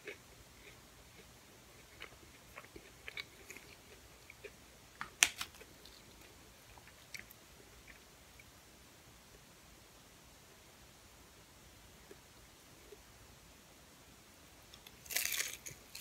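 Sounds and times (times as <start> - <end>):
crisp wrapper crackling: 15.0 - 16.0
sharp crunch: 15.0 - 16.0.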